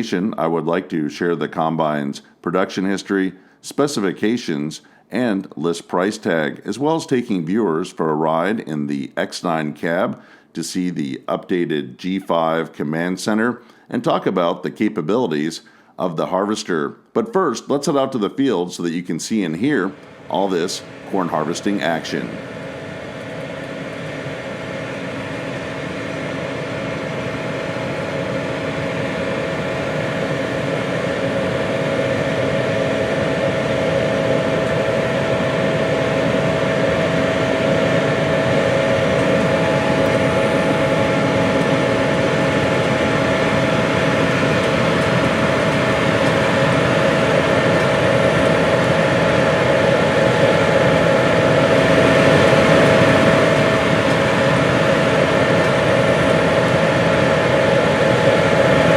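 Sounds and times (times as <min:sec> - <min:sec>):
combine harvester whine: 0:19.4 - 0:58.9.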